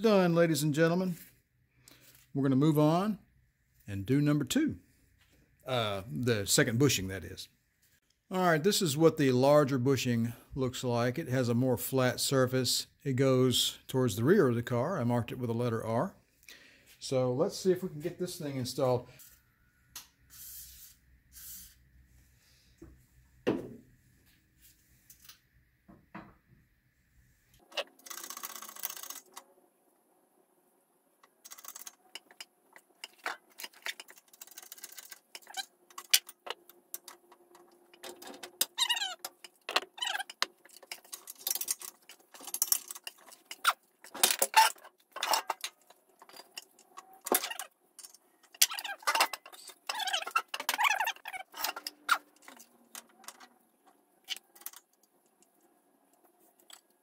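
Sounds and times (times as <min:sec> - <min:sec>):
parts clicking and clinking: 0:27.6 - 0:29.5, 0:31.2 - 0:57.0
short squeaks: 0:44.4 - 0:53.5.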